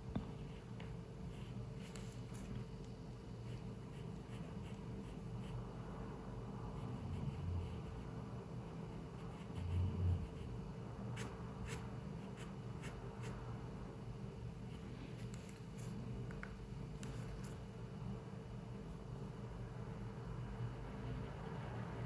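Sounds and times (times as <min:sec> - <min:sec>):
pencil scratching on paper: 0:03.4 - 0:05.7, 0:06.7 - 0:08.3, 0:08.9 - 0:13.4.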